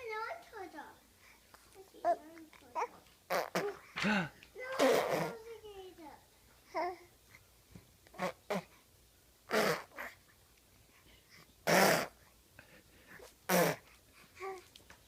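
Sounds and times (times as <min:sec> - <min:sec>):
faint baby voice: 0:01.6 - 0:07.1, 0:13.5 - 0:14.8
baby making breathy vocal sounds: 0:02.0 - 0:05.6, 0:08.1 - 0:08.8, 0:09.5 - 0:10.2, 0:13.2 - 0:14.7.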